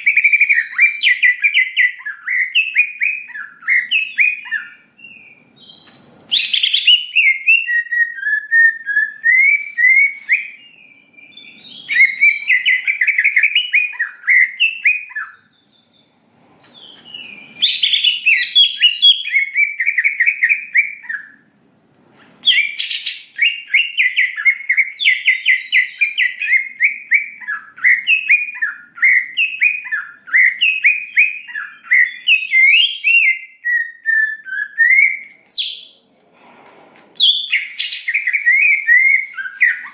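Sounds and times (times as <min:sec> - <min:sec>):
bird singing chirps and trills: 0:00.0 - 0:21.4, 0:22.4 - 0:36.0.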